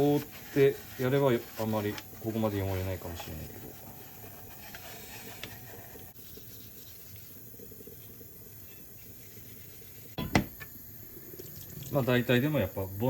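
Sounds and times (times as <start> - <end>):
steel wool scrubbing metal tin: 0.0 - 7.2.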